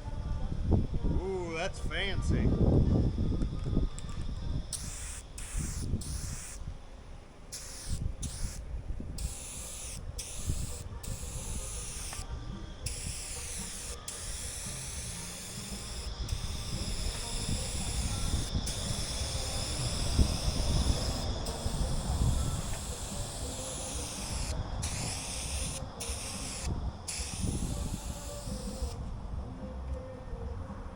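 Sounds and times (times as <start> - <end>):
spray paint can hissing: 3.5 - 6.6, 7.5 - 8.6, 9.2 - 29.0.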